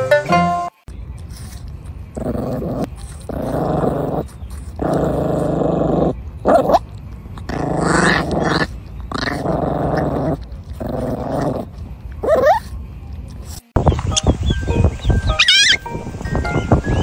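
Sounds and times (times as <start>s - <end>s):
puppy growling: 1.3s - 12.7s
puppy high whine: 15.2s - 15.8s.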